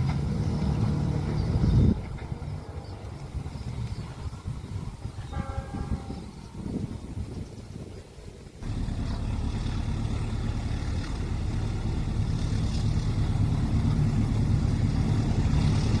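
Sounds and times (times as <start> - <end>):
vehicle engine low drone: 0.0 - 5.2, 8.5 - 16.0.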